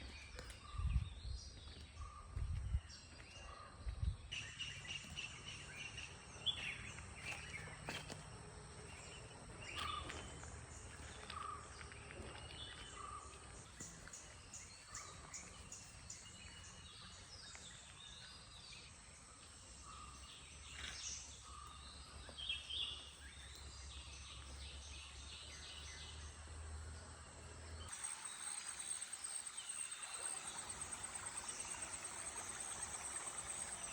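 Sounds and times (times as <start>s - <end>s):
insect chirring: 27.9s - 33.9s.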